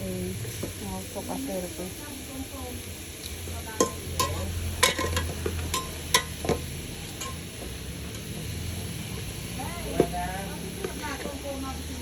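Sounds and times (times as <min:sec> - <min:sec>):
metal utensil clinking on cookware: 0:03.8 - 0:06.6, 0:07.2 - 0:07.4.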